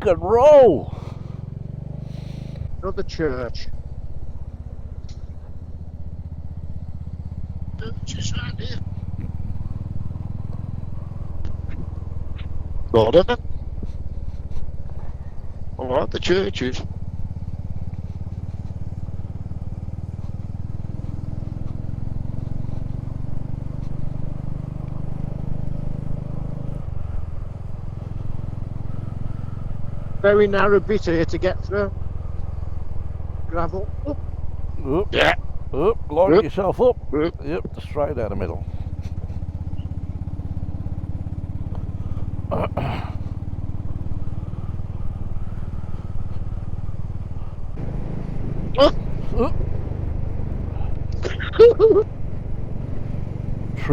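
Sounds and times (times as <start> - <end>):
person speaking: 0.0 - 1.0, 34.8 - 38.6, 42.5 - 43.1, 51.2 - 52.0
motorcycle engine accelerating: 0.0 - 53.9.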